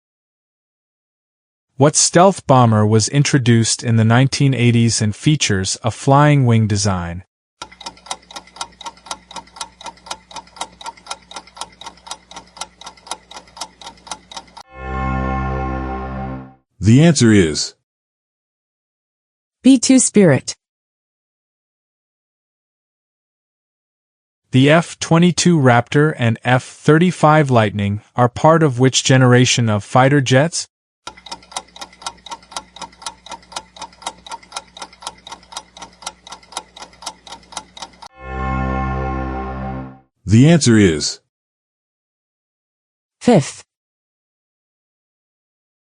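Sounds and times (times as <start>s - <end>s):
clock ticking fast: 7.6s - 14.7s, 31.1s - 38.1s.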